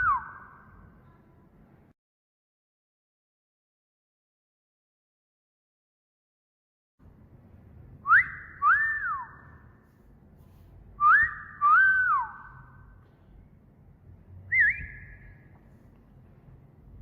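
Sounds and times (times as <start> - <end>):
person wolf whistling: 0.0 - 0.5, 8.1 - 9.4, 11.0 - 12.6, 14.5 - 15.3.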